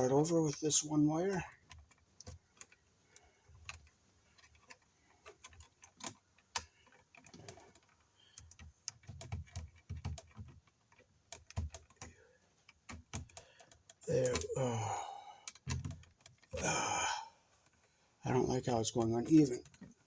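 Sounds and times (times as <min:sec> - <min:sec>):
wires clicking and rustling: 0:00.0 - 0:20.0.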